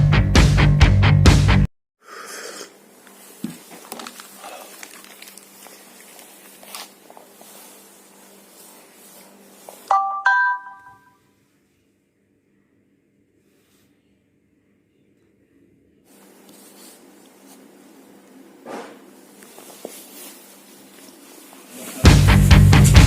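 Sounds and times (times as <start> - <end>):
rock song: 0.0 - 1.7, 22.0 - 23.0.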